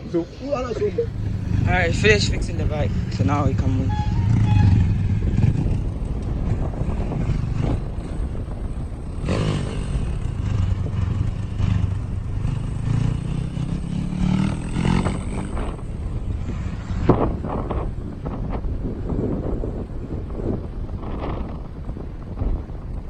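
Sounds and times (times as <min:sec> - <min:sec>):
dirt bike engine revving: 0:00.6 - 0:15.9.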